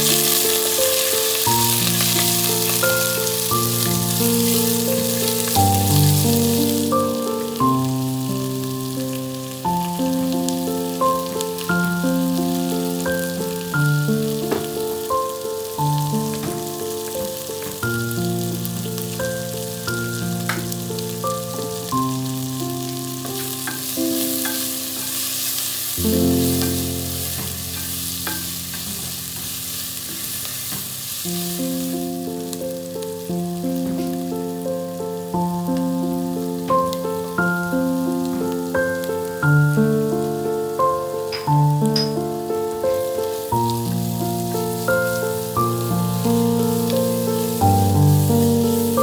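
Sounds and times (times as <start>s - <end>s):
background music: 0.0s - 28.5s
food sizzling in hot oil: 0.0s - 49.0s.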